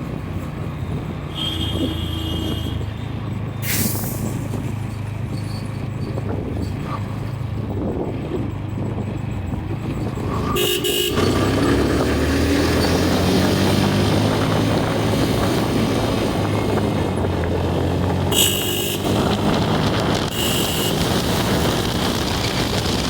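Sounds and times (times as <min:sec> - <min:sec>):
vehicle horn honking: 0:01.3 - 0:03.0, 0:10.5 - 0:11.7, 0:18.2 - 0:19.5, 0:20.1 - 0:21.4
motorcycle engine running: 0:04.6 - 0:23.0.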